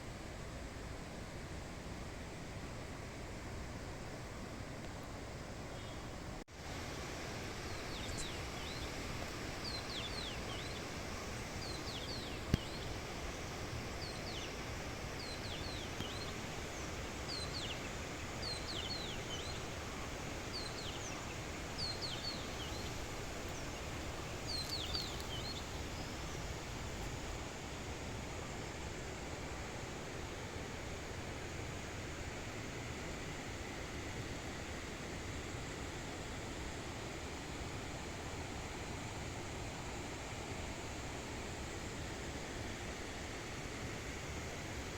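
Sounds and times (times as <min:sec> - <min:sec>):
forest ambience: 0:02.7 - 0:44.9
songbird chirping: 0:07.6 - 0:27.0.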